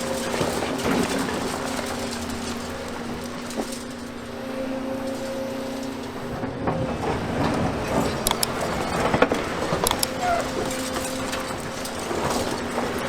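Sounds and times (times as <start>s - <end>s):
demolition rubble clattering: 0.0s - 13.0s
excavator diesel engine running: 0.0s - 13.0s.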